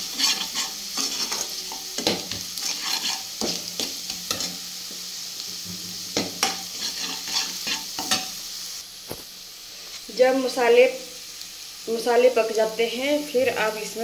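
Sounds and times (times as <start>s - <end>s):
ladle scraping a pan: 0.0s - 4.5s, 6.4s - 8.3s
onions sizzling in oil: 0.0s - 14.0s.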